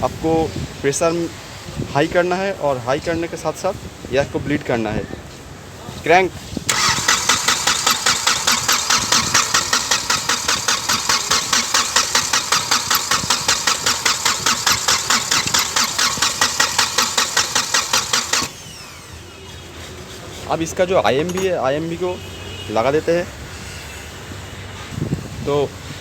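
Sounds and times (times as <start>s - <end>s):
starter motor cranking diesel engine: 6.7s - 20.0s.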